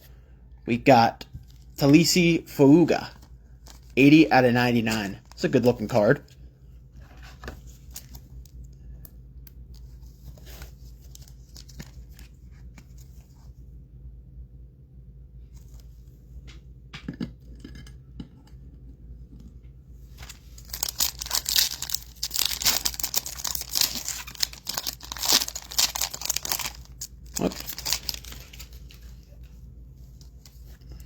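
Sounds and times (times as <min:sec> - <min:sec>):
foil wrapper tearing: 0:20.2 - 0:29.3.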